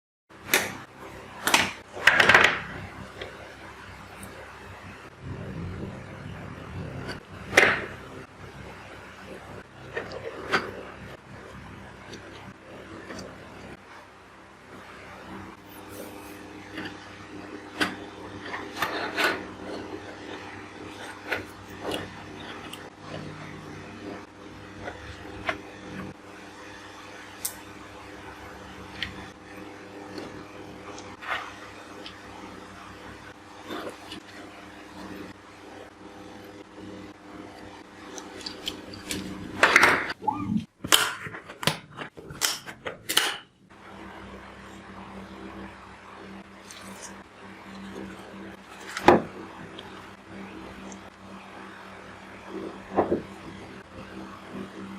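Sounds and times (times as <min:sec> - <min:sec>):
steady low hum: 0:00.3 - 0:54.9
hard parts rasping and scraping: 0:15.5 - 0:26.2.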